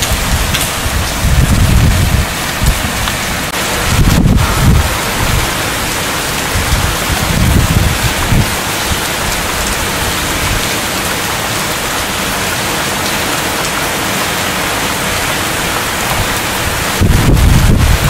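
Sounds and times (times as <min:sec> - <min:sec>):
low rumble of thunder: 0:00.0 - 0:09.0, 0:16.1 - 0:18.0
heavy rain falling: 0:00.0 - 0:18.0.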